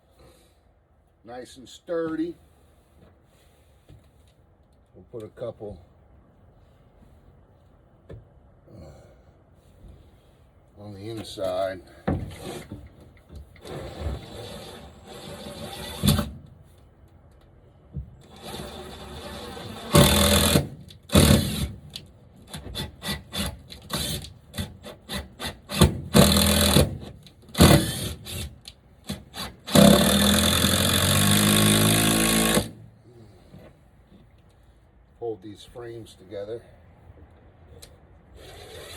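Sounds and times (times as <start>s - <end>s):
power drill driving screws into wood: 13.6s - 16.4s, 18.2s - 32.8s, 38.4s - 38.9s.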